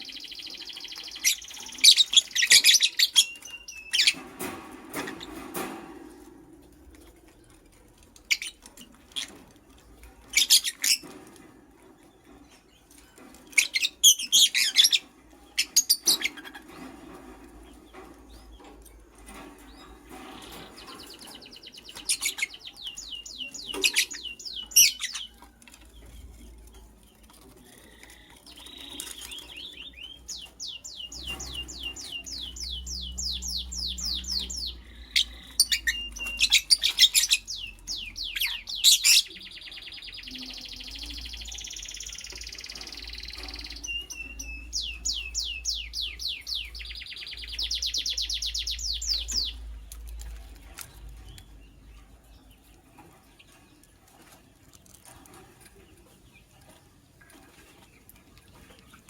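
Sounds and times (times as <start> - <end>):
lovebird chirping and trilling: 0.0 - 4.3, 10.3 - 11.2, 13.5 - 16.8, 19.6 - 26.5, 27.2 - 49.7.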